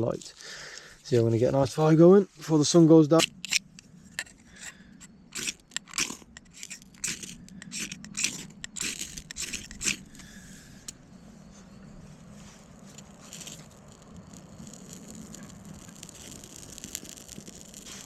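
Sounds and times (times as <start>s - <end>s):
faint steady hiss: 0.0s - 7.6s
bark and sticks scraping: 2.4s - 10.4s.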